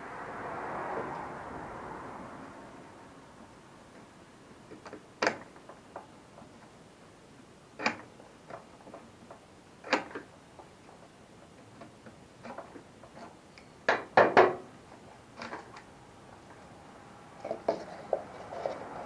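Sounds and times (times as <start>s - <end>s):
clicks and clunks of lawnmower parts: 7.8s - 10.7s, 11.7s - 14.7s.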